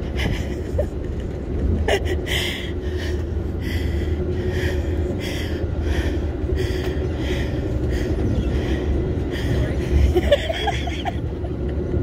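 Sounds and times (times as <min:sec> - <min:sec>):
train rumble inside coach: 0:00.0 - 0:12.0
person breathing hard: 0:02.1 - 0:10.2.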